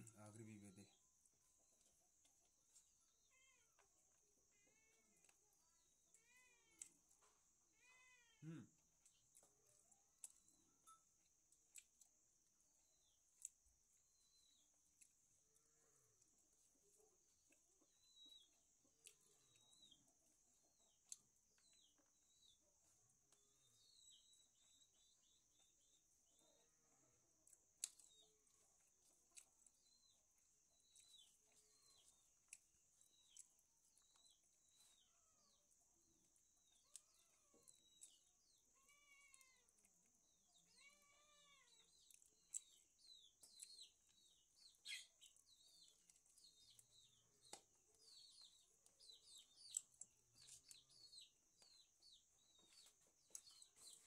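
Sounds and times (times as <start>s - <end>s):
high bird chirps: 44.7s - 46.9s.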